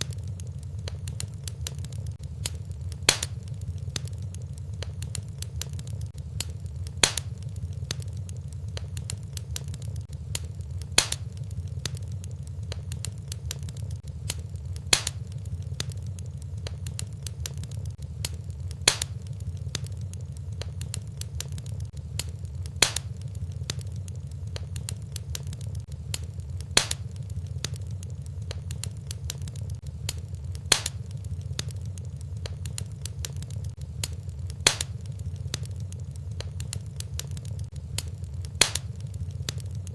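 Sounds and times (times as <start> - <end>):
fireplace fire crackling: 0.0 - 39.9
log popping: 0.0 - 39.9.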